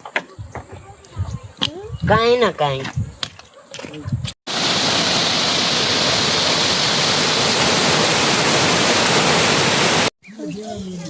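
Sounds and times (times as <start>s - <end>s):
water rushing: 4.5s - 10.1s.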